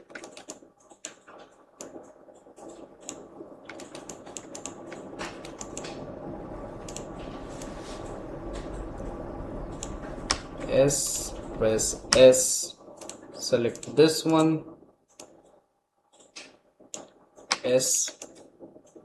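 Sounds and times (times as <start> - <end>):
keyboard and mouse clicking: 0.0 - 6.0, 6.9 - 7.7, 13.0 - 14.5, 16.1 - 19.0
low hum: 1.4 - 15.7.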